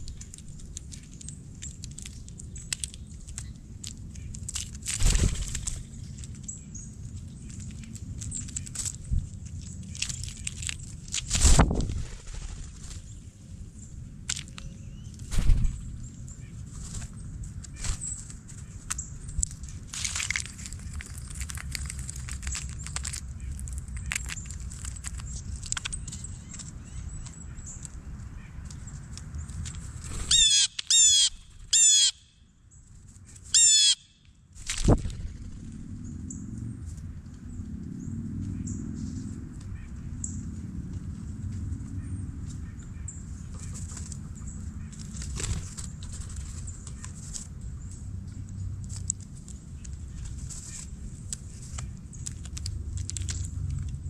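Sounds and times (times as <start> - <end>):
small animals tapping and clicking: 0.0 - 11.4, 17.5 - 30.0, 43.5 - 54.0
steady low rumble: 0.0 - 30.4, 34.5 - 54.0
harsh rolling bird calls: 30.0 - 32.3.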